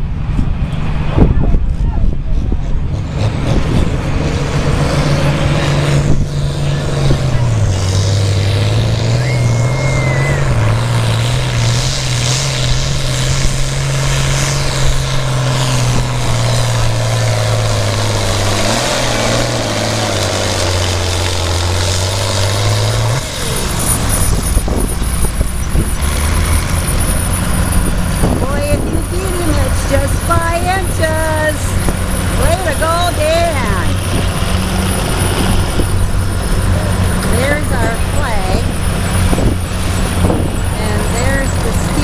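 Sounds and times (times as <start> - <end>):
tractor diesel engine under load: 0.0 - 42.0.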